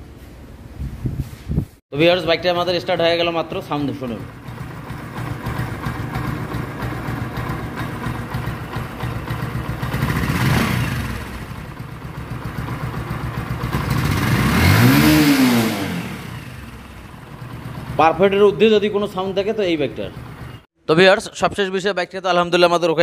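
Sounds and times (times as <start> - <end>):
motorcycle engine idling and revving: 2.6 - 20.7.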